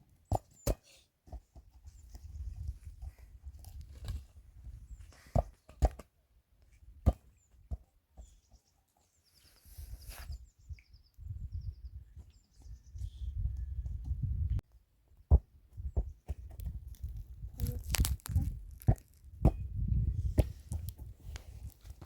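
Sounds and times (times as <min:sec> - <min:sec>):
gusty wind on microphone: 0:09.8 - 0:14.6, 0:15.8 - 0:21.7.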